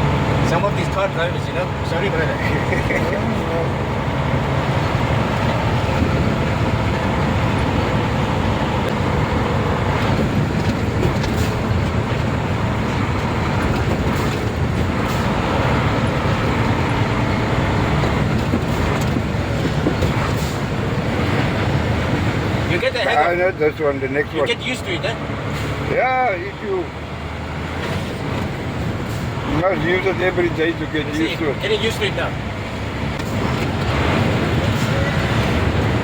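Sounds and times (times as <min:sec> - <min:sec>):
diesel truck engine running: 0:00.0 - 0:36.0
road noise: 0:00.0 - 0:36.0
knocks and rattles: 0:08.8 - 0:16.0, 0:17.8 - 0:22.6.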